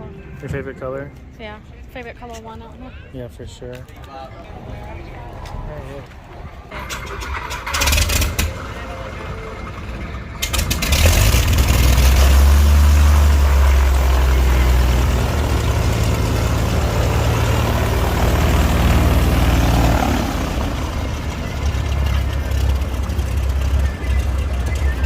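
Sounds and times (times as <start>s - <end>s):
heavy engine droning: 6.6s - 25.0s.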